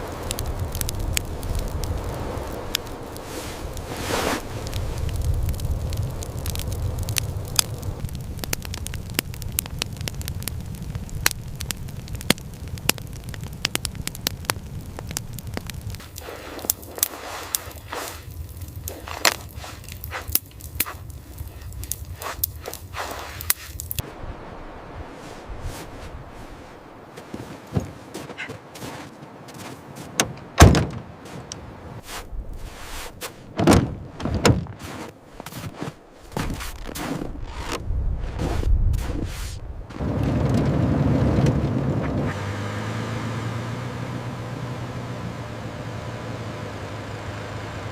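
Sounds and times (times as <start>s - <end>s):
wood fire crackling: 0.0s - 47.9s
heavy knocks: 30.2s - 31.1s.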